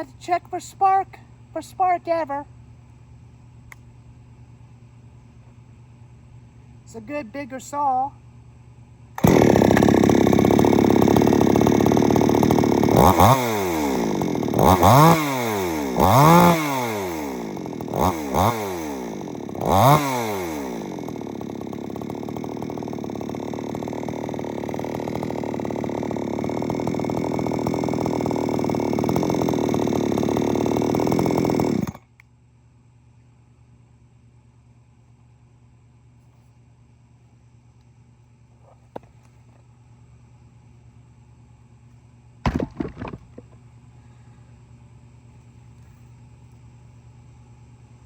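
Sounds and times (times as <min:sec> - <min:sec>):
chainsaw revving and idling: 0:09.2 - 0:32.1, 0:42.5 - 0:43.6.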